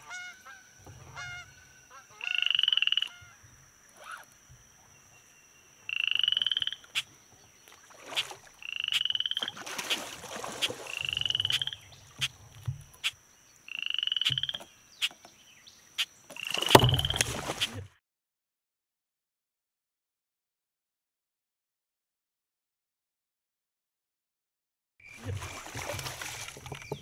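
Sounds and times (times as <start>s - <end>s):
frog trilling: 1.2s - 3.4s, 4.0s - 4.3s, 5.9s - 7.1s, 8.1s - 9.6s, 10.9s - 12.4s, 13.0s - 15.2s
fish splashing at surface: 7.7s - 8.6s, 9.4s - 12.4s, 16.4s - 17.8s, 25.2s - 27.0s.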